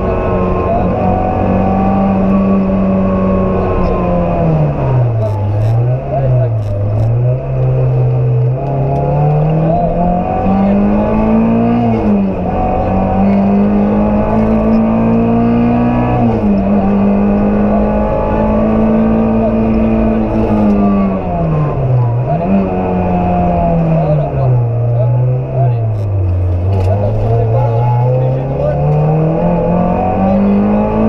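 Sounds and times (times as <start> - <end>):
rally car engine revving: 0.0 - 31.0.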